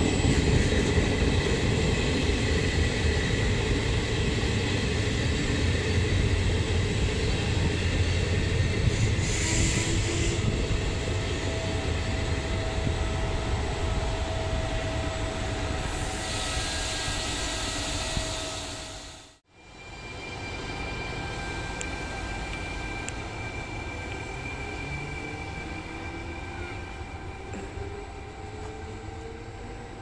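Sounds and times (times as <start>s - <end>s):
electric locomotive whine: 0.0s - 30.0s
train coaches rumbling past: 0.0s - 30.0s.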